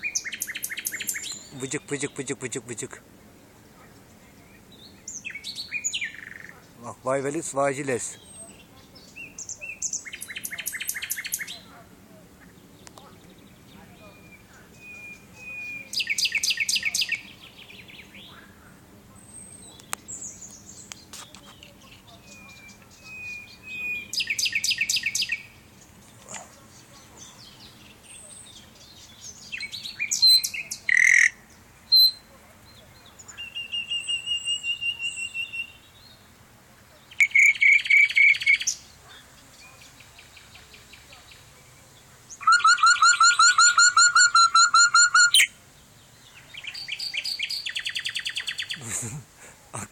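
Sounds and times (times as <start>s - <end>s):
nightingale singing: 0.0s - 2.6s, 4.0s - 11.8s, 12.4s - 36.2s, 36.9s - 48.9s.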